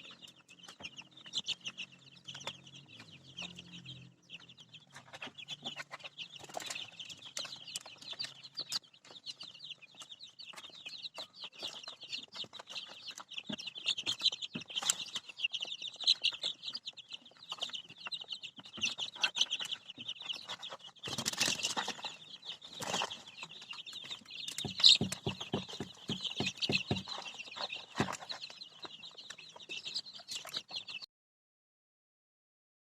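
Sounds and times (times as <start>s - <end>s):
chicks peeping: 0.0s - 31.1s
knocks and taps: 24.5s - 27.2s.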